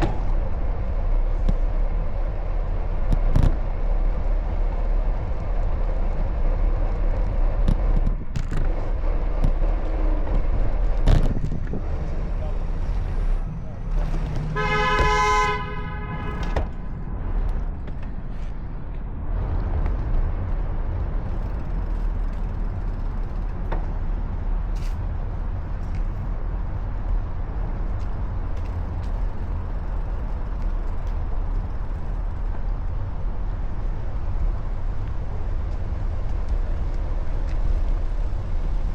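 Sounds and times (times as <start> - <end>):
traffic rumble: 0.0 - 38.9
wind noise: 0.0 - 38.9
vehicle horn toot: 14.4 - 16.7.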